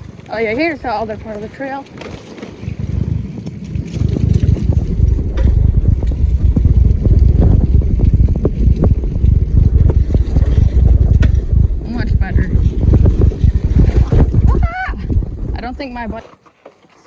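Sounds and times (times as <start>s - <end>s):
wind buffeting microphone: 0.0s - 16.3s.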